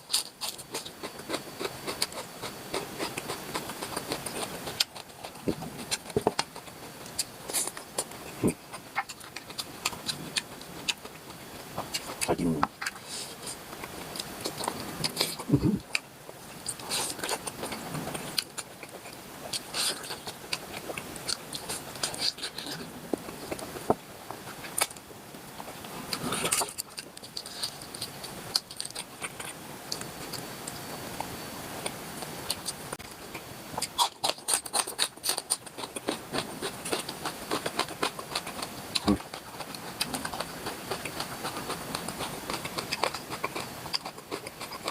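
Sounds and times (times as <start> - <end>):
person chewing: 0.1 - 44.9.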